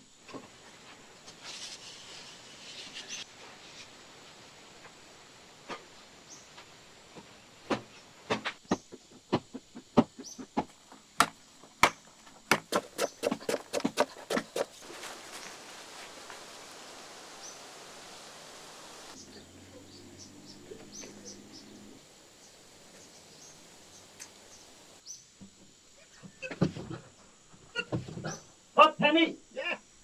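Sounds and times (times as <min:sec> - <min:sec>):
steady hiss: 0:00.0 - 0:30.0
sharp knocks: 0:09.3 - 0:14.7
faint bird chirps: 0:19.2 - 0:25.3.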